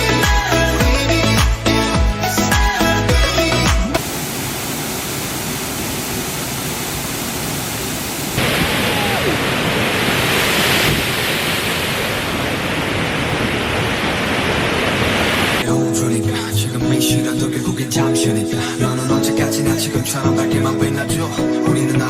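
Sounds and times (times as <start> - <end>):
waterfall rushing: 4.0 - 15.6.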